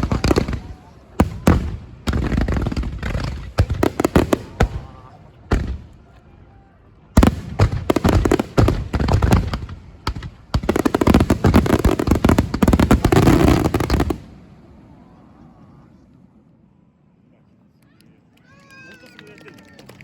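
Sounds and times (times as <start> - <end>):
fireworks bursting: 0.0 - 6.2, 7.2 - 14.5.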